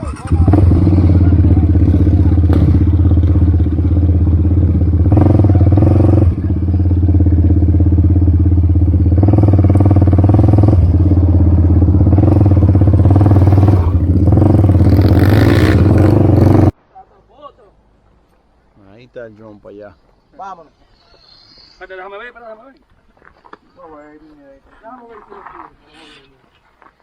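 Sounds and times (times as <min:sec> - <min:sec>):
quad bike engine running: 0:00.0 - 0:16.8.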